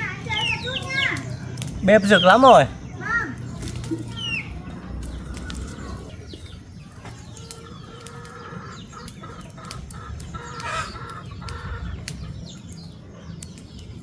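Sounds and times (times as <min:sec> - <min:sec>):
chickens clucking: 0:00.0 - 0:14.0
sharp clicks: 0:00.3 - 0:02.6, 0:07.3 - 0:14.0.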